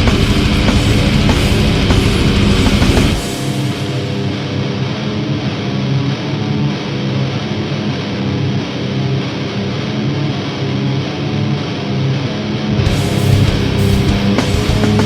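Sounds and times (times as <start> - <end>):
drums: 0.0 - 7.7, 12.7 - 15.0
distorted electric guitars: 0.0 - 15.0.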